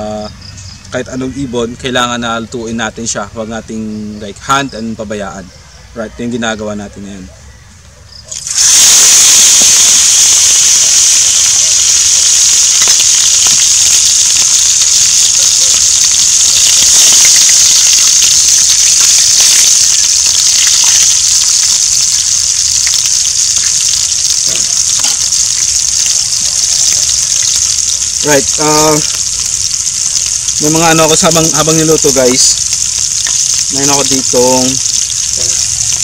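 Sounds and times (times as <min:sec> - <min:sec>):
meat frying in hot oil: 0:08.2 - 0:36.0.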